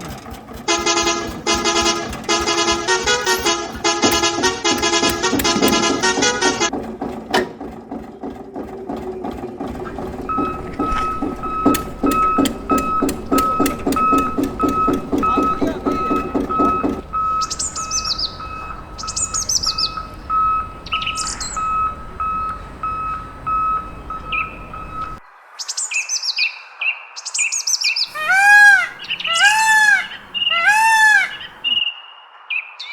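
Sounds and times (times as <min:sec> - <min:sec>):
pulsing mechanical hum: 0:00.0 - 0:25.2
sharp clicks: 0:00.7 - 0:06.7, 0:09.8 - 0:18.3
falling bird chirps: 0:10.0 - 0:32.9
electronic beeping: 0:10.1 - 0:25.2.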